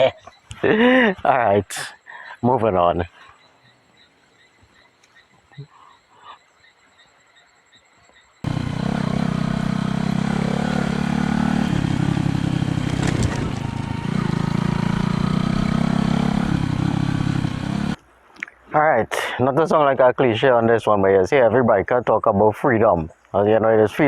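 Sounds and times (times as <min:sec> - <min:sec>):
motorcycle engine running: 0:08.4 - 0:18.0
rushing wind: 0:08.5 - 0:18.0.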